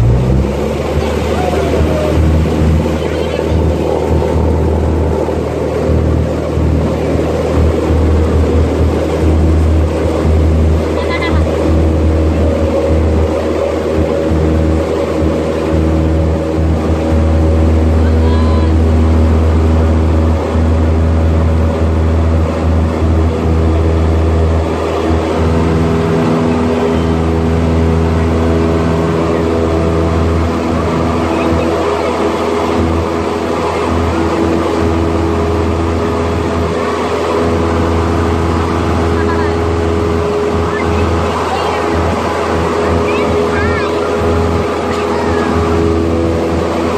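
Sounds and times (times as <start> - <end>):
rushing air: 0.0 - 18.0
light aircraft engine droning: 0.0 - 46.9.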